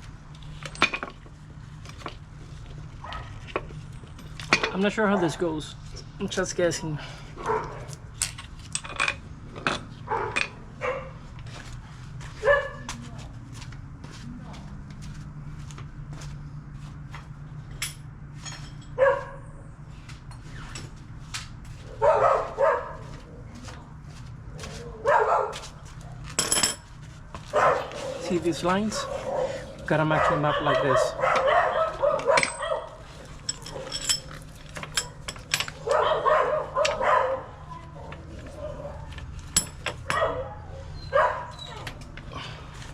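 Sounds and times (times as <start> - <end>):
metal parts clinking: 0.4 - 1.2, 8.2 - 10.6, 26.3 - 26.9, 32.3 - 35.9
dog barking: 7.4 - 7.9, 10.1 - 11.2, 12.4 - 12.9, 19.0 - 19.5, 21.9 - 23.2, 25.0 - 26.2, 27.5 - 33.0, 35.8 - 37.7, 38.5 - 39.1, 40.0 - 41.8
dog vocalizing: 29.0 - 32.4.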